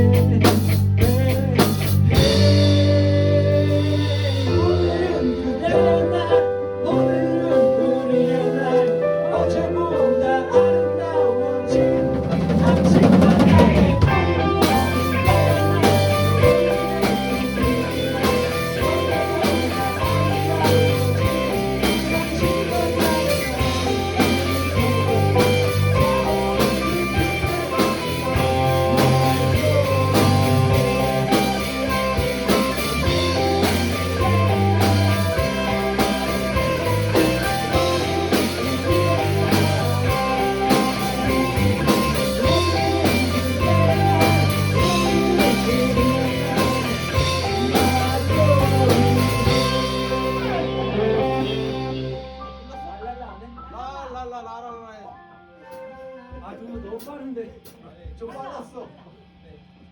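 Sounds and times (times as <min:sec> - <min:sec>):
drum kit: 0:00.0 - 0:06.0, 0:11.7 - 0:53.0
electric guitar: 0:00.0 - 0:53.5
bass line: 0:00.0 - 0:54.2.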